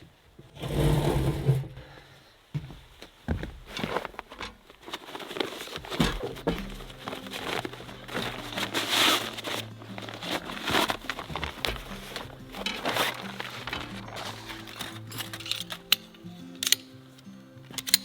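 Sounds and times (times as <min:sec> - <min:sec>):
camping gear crinkling and knocking: 0:02.9 - 0:18.0
soft background music: 0:05.2 - 0:18.0.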